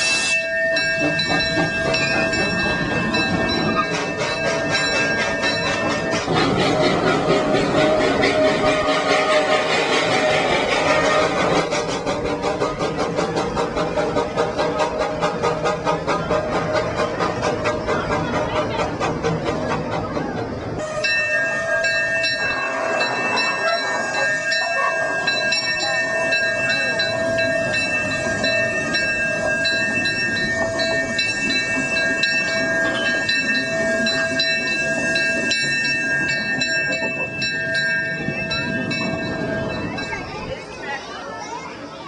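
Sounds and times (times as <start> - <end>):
chime steam whistle chord: 0.0 - 6.3, 20.8 - 39.9
steam locomotive running: 0.0 - 42.0.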